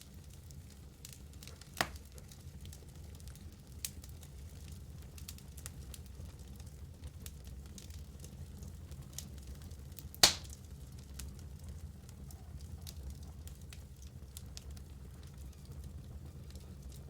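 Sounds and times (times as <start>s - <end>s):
wood fire crackling: 0.0s - 17.0s
logs popping and snapping: 10.2s - 10.6s.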